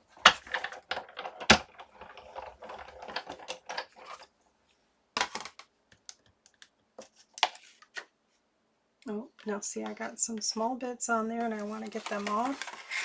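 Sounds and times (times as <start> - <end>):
paper rustling: 11.4 - 13.0.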